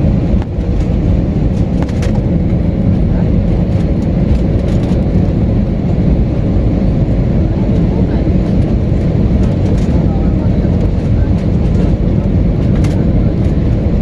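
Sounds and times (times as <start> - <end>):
low vehicle rumble: 0.0 - 14.0.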